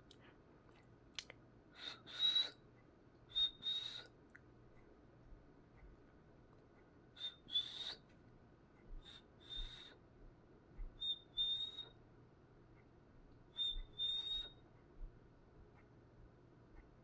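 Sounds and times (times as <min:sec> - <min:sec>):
cockatiel whistling calls: 0:07.2 - 0:08.0, 0:11.0 - 0:11.9, 0:13.6 - 0:14.6.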